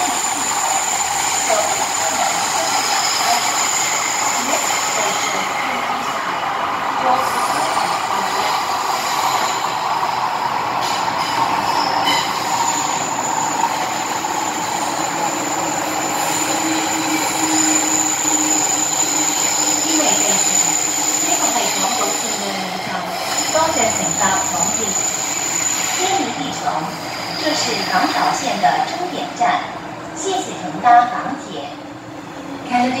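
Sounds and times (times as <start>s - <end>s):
train rumbling in tunnel: 0.0s - 33.0s
high-pitched wheel squeal: 10.8s - 26.2s.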